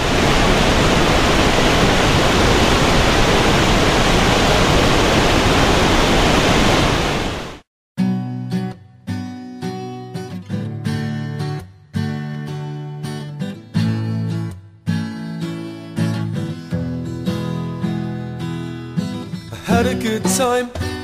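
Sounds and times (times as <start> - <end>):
loud rushing noise: 0.0 - 7.6
strummed acoustic guitar: 8.0 - 21.0.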